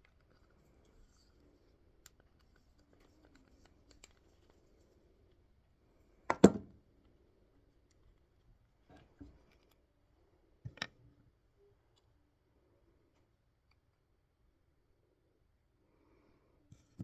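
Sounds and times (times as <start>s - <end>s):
small parts and tools clicking: 0.0s - 5.4s.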